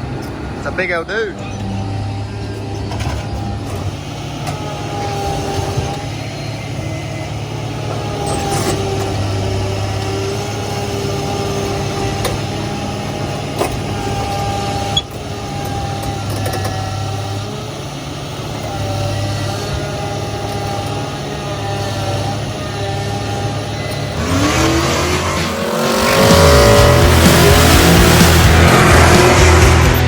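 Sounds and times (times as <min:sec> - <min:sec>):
vehicle engine idling: 0:00.0 - 0:30.0.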